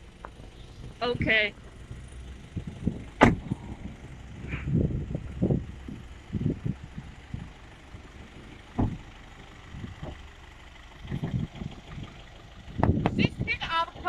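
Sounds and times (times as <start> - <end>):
truck engine idling: 0.0 - 14.0
short low thumps: 2.4 - 10.3, 12.8 - 13.3.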